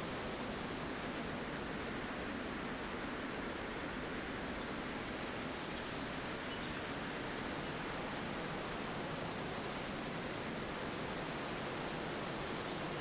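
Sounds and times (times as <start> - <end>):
wind through forest trees: 0.0 - 13.0.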